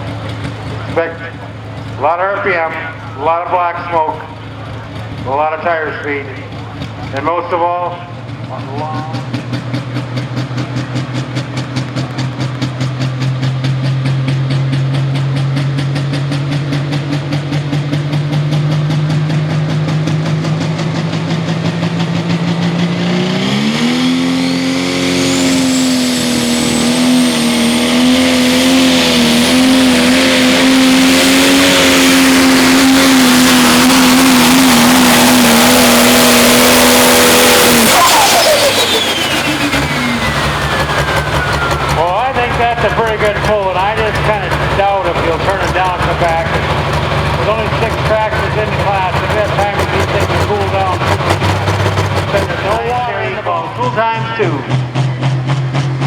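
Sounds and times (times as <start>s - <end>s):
diesel tractor engine under load: 0.0s - 56.0s
high turbo whistle: 23.0s - 46.4s.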